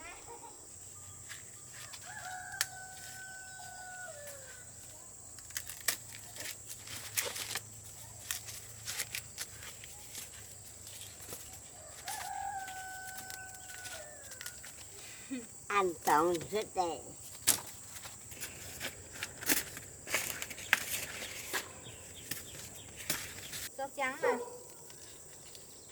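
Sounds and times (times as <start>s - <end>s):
rooster crowing: 1.8s - 4.8s, 11.6s - 14.7s.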